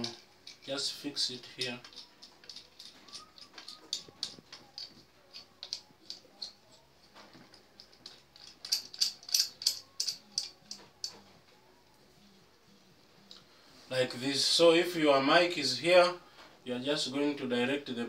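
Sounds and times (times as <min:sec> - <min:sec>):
clamp clicking and knocking: 0:07.4 - 0:11.2.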